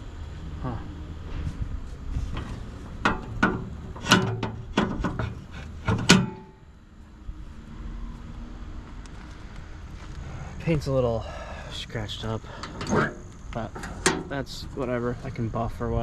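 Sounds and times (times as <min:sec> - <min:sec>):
metal panel clanking: 0:02.3 - 0:06.6, 0:12.5 - 0:14.4.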